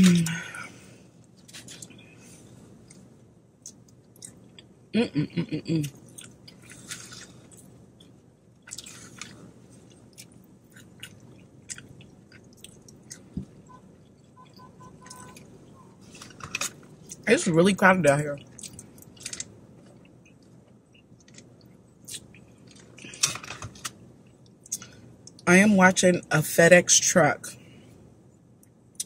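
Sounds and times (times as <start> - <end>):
chewing fried chicken: 5.9 - 17.2, 18.4 - 23.4.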